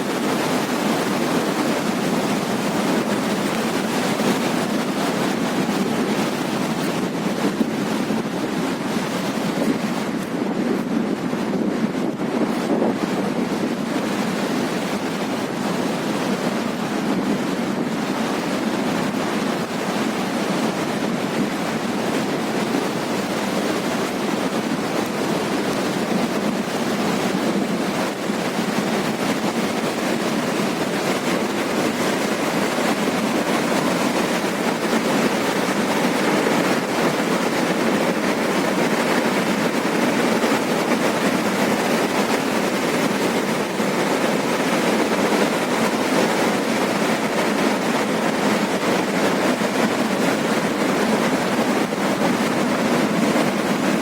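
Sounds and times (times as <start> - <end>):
river rushing in flood: 0.0 - 54.0.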